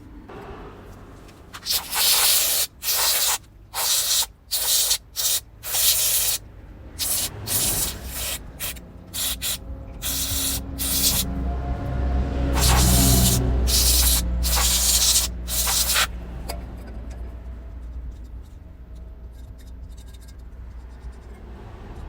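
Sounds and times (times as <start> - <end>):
aerosol spray can hissing: 1.6 - 6.4, 7.0 - 11.3, 12.6 - 16.1.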